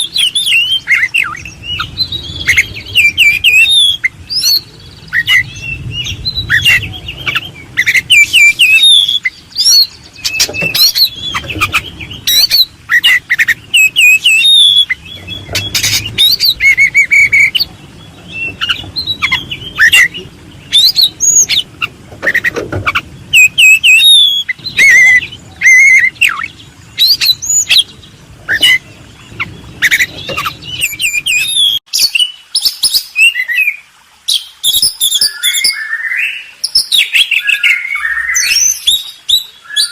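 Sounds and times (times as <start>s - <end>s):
small birds chirping: 0.0s - 39.9s
low hum: 1.3s - 31.8s.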